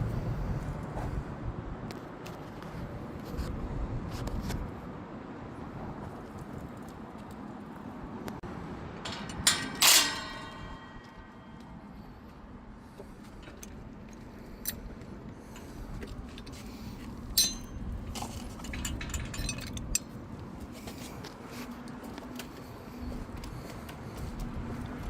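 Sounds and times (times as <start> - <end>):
metal parts and tools clicking: 9.0 - 11.7, 13.4 - 15.0, 17.3 - 20.2
loud ringing metal clang: 9.1 - 11.6.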